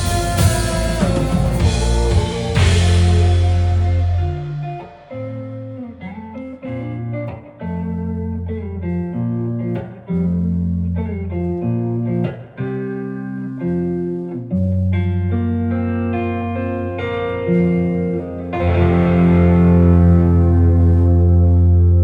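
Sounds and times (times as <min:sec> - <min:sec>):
rock band playing instrumental: 0:00.0 - 0:08.2, 0:15.1 - 0:22.0.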